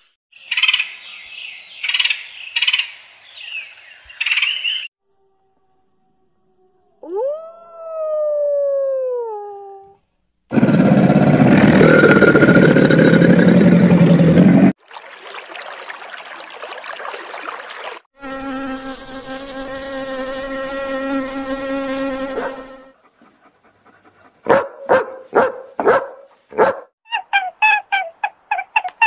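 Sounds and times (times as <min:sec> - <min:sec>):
honeybees buzzing: 0:18.2 - 0:22.9.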